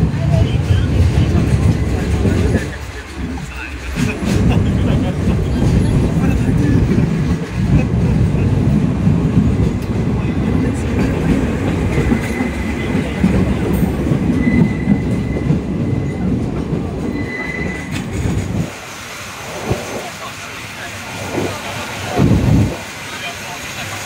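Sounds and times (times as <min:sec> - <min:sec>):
train wheels rumbling on rails: 0:00.0 - 0:24.0
high wheel squeal: 0:11.9 - 0:13.2, 0:14.3 - 0:16.3, 0:17.1 - 0:18.1.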